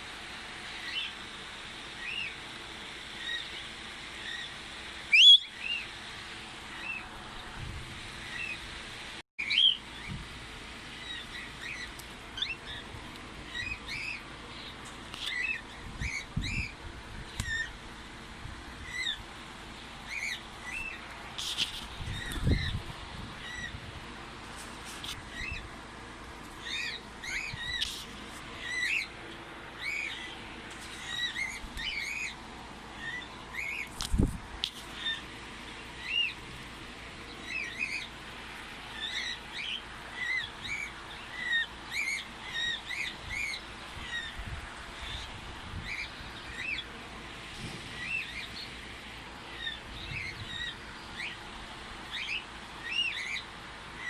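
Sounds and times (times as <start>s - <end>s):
bird chirping: 3.2s - 5.9s, 9.4s - 10.2s, 26.6s - 28.0s, 28.6s - 29.2s, 29.8s - 34.0s.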